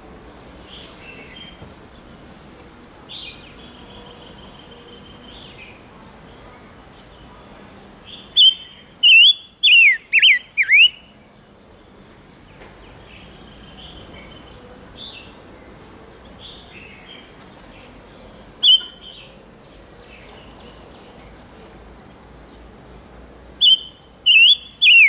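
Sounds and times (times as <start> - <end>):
bird whistled calls: 8.4 - 11.0, 18.6 - 19.1, 23.6 - 25.0.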